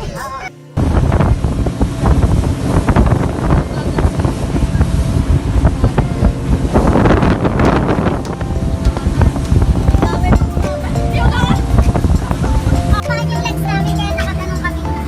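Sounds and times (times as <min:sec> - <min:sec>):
wind buffeting microphone: 0:00.0 - 0:14.9
jet ski engine running: 0:00.8 - 0:15.0.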